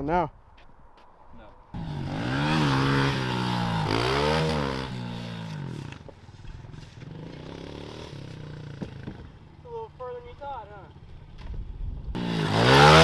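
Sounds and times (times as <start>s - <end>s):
dirt bike engine revving: 1.8s - 9.5s, 12.2s - 13.0s.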